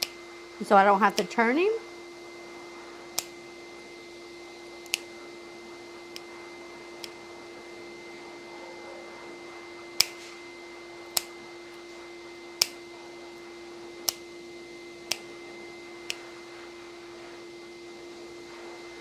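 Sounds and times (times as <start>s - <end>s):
low steady hum: 0.0s - 19.0s
nail clippers clicking: 1.1s - 1.3s, 3.1s - 3.4s, 4.8s - 5.1s, 7.0s - 7.2s, 10.0s - 10.2s, 11.1s - 11.4s, 12.6s - 12.8s, 14.0s - 14.3s, 15.0s - 15.3s, 16.0s - 16.2s.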